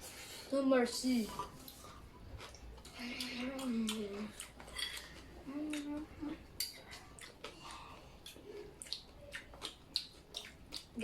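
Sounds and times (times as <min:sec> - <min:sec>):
person humming: 0:05.4 - 0:06.4.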